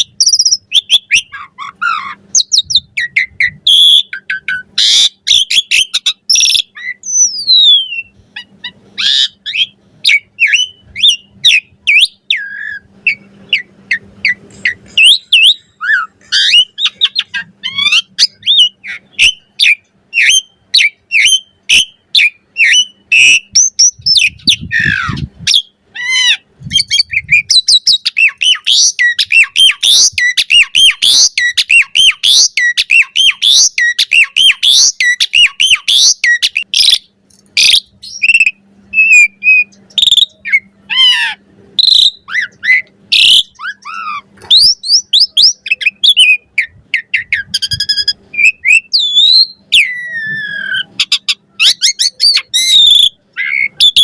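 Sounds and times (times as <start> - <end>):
starling singing: 0.0 - 54.0.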